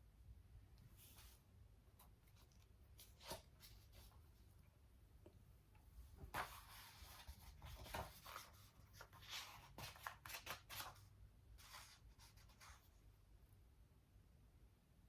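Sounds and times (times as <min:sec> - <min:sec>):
book pages rustling: 0:02.0 - 0:04.3, 0:06.2 - 0:12.9.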